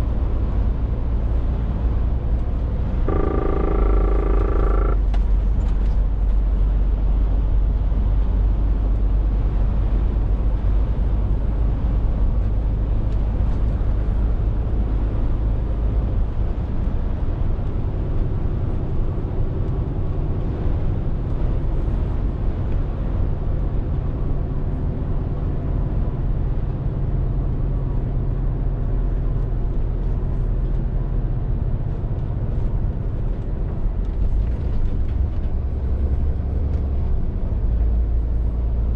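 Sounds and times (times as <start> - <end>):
lorry diesel engine running: 0.0 - 13.0
tyre and road noise: 0.0 - 25.2, 27.9 - 38.9.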